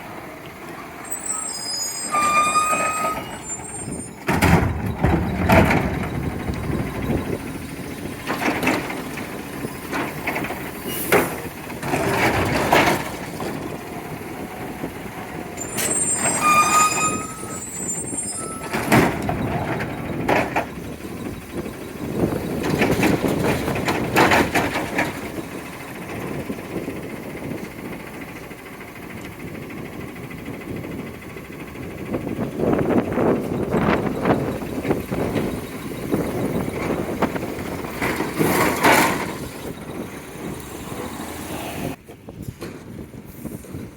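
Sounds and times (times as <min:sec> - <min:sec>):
truck engine running: 0:00.0 - 0:43.9
brief squeal: 0:01.0 - 0:04.4, 0:15.6 - 0:19.6.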